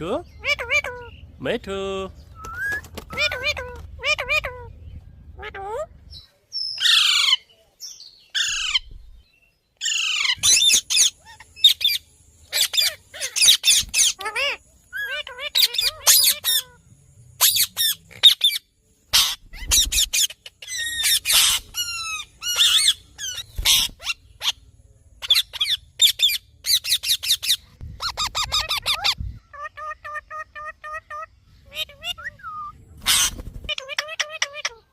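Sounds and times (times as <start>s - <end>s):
parakeet squawking: 0.3s - 1.2s, 3.1s - 4.7s, 5.4s - 5.9s, 6.8s - 7.4s, 9.8s - 16.8s, 17.4s - 24.6s, 25.2s - 34.9s.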